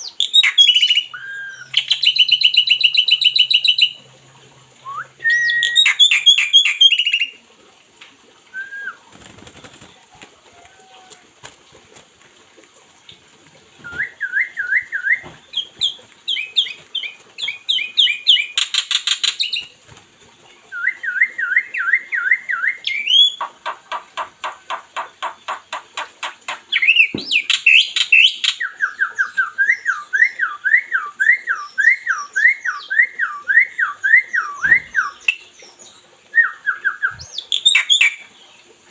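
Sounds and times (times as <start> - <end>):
songbird whistling and chattering: 0.0 - 4.0, 4.8 - 7.3, 13.8 - 19.6, 25.2 - 35.5, 36.3 - 38.2.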